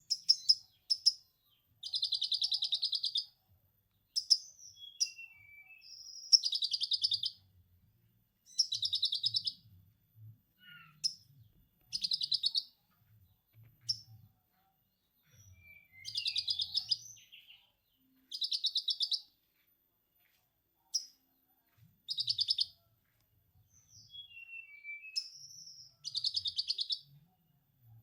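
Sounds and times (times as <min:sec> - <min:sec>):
sharp bird chips: 0:00.1 - 0:01.2, 0:16.0 - 0:17.0
whistled bird notes: 0:04.2 - 0:07.3, 0:15.4 - 0:17.6, 0:23.8 - 0:27.1.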